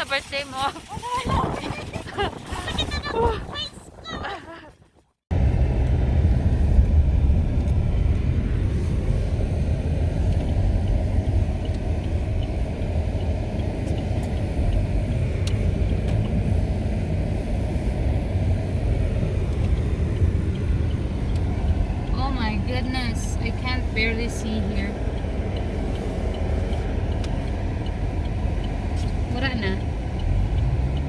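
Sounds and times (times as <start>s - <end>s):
wind blowing against microphone: 0.0s - 24.0s.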